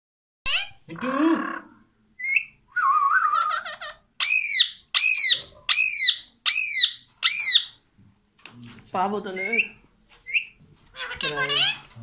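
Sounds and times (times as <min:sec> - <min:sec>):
parrot screeching: 0:00.5 - 0:00.8, 0:03.3 - 0:07.8, 0:09.3 - 0:11.9
parrot chirping and warbling: 0:00.5 - 0:07.8, 0:09.2 - 0:12.0.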